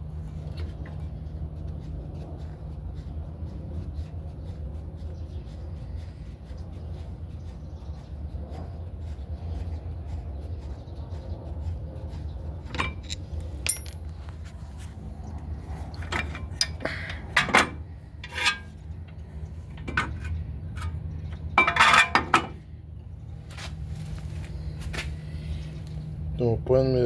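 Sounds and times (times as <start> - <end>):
steady low hum: 0.0 - 27.0
metal tools clinking: 12.7 - 14.3, 18.2 - 18.7, 21.6 - 22.5.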